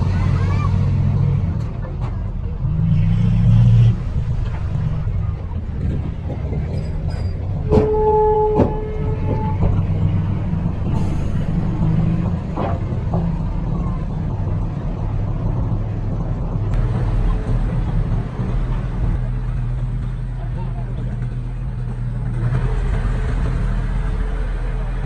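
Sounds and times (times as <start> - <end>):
diesel engine rumbling: 0.0 - 25.0
metal clanks: 4.0 - 14.3
steady squeal: 5.8 - 12.6.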